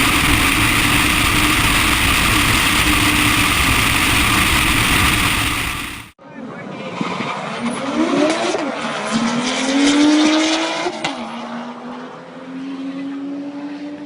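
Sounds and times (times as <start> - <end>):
drag car engine at full throttle: 0.0 - 6.2.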